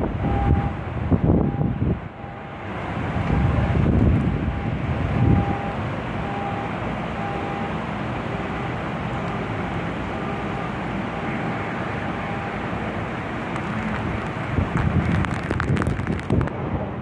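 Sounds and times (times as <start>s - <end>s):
steady rain hiss: 10.8s - 16.6s.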